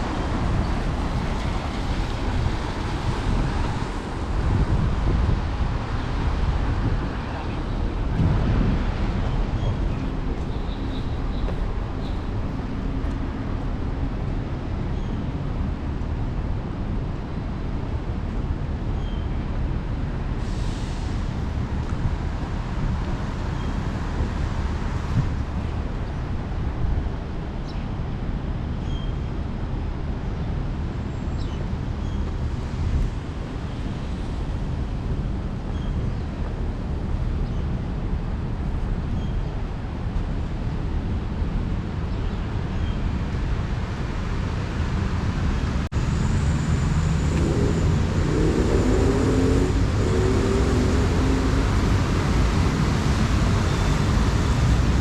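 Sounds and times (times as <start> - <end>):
road traffic rumble: 0.0 - 55.0
nearby engine changing pitch: 46.3 - 51.8.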